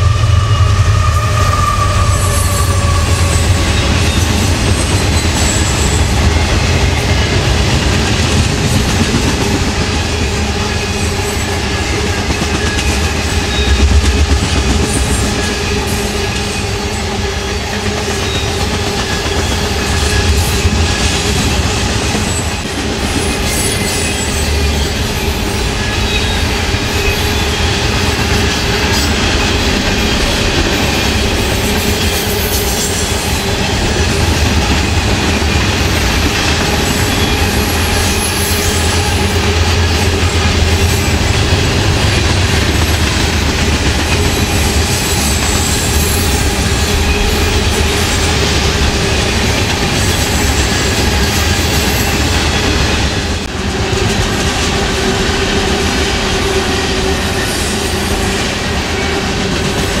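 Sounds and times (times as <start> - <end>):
ringing tone from train wheels: 0.0 - 7.6, 10.4 - 21.6, 22.2 - 41.9
freight train rumble and clatter: 0.0 - 60.0.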